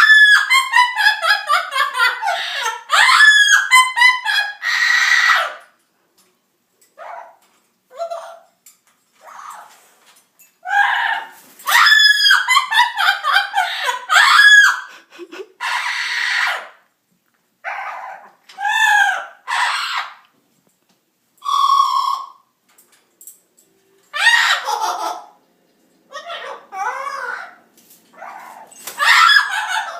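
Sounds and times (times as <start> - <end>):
parrots squawking and screeching: 0.0 - 5.8, 9.1 - 14.9, 15.6 - 16.8, 17.6 - 20.2, 21.4 - 22.4, 24.1 - 25.4, 26.1 - 29.9.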